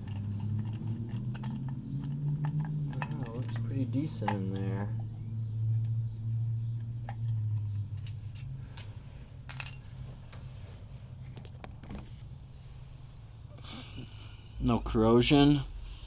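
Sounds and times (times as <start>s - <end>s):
small metal parts clinking: 0.0s - 3.7s, 7.9s - 8.9s, 9.5s - 9.9s
steady low hum: 0.0s - 16.0s.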